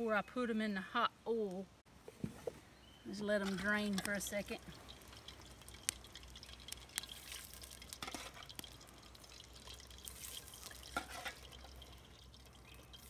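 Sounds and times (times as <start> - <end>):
water drips: 3.2 - 13.0.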